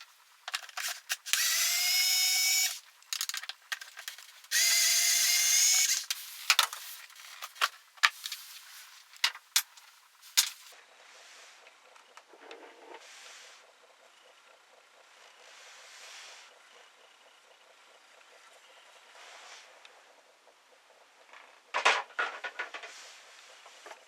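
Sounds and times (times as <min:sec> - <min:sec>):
electric power tool whine: 0:01.2 - 0:02.8, 0:04.5 - 0:06.2
tools clicking and knocking: 0:03.1 - 0:04.7.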